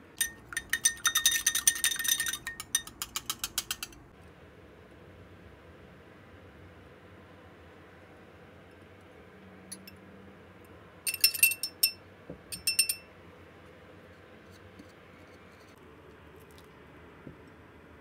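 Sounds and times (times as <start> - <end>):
glass bowls clinking: 0.2 - 4.0, 9.7 - 10.0, 11.1 - 13.1.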